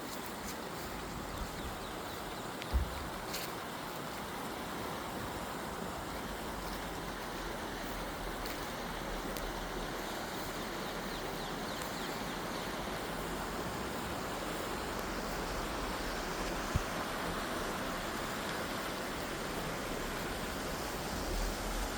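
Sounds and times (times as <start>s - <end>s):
low thump: 2.7s - 3.1s.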